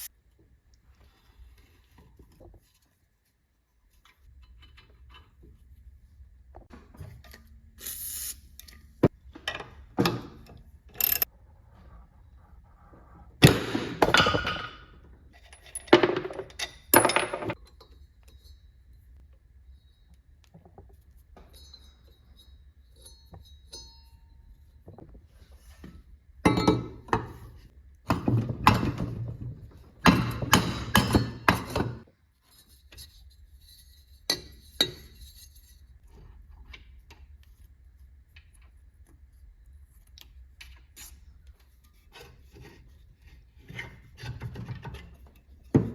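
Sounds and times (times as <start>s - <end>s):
metal parts and tools clinking: 8.5s - 11.3s, 13.5s - 19.2s, 21.3s - 25.0s.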